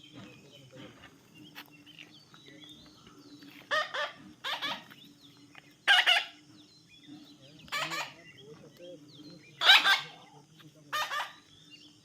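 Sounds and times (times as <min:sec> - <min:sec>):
faint twittering: 0:00.0 - 0:12.0
baby parrot calling: 0:03.7 - 0:05.0, 0:05.8 - 0:06.4, 0:07.7 - 0:08.2, 0:09.6 - 0:10.2, 0:10.9 - 0:11.5.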